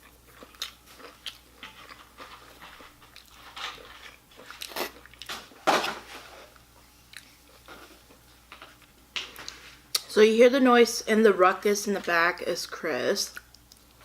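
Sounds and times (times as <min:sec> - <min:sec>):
biting and chewing food: 0:00.0 - 0:10.1.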